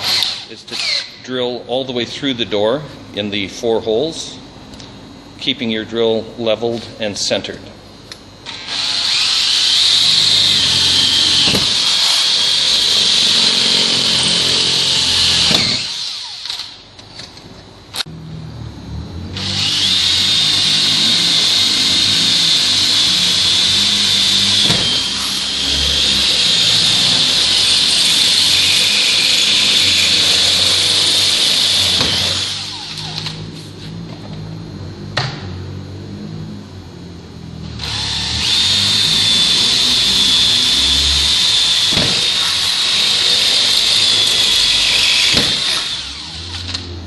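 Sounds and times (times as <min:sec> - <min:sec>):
drill boring through steel: 0:00.0 - 0:01.2, 0:08.4 - 0:16.8, 0:19.4 - 0:33.4, 0:37.8 - 0:46.9
drill click: 0:14.8 - 0:16.8.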